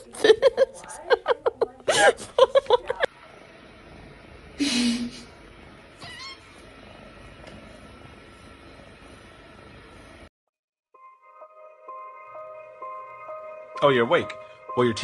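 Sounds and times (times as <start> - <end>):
cat crying: 6.0 - 6.5
cat meowing: 6.0 - 6.5.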